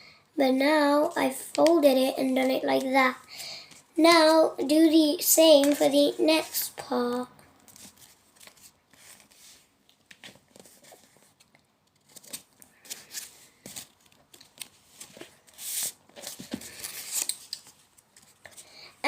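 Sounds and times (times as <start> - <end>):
paper crinkling and rustling: 7.7 - 18.6.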